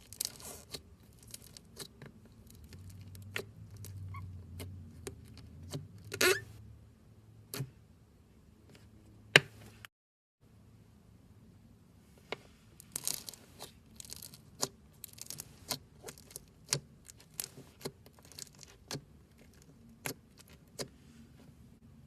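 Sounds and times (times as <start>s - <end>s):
slime crackling and popping: 0.0s - 4.0s, 12.9s - 20.9s.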